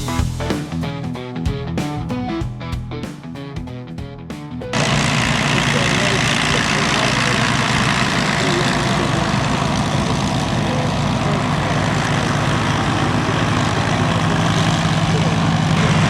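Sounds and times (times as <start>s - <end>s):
piston engines droning: 4.7s - 16.0s.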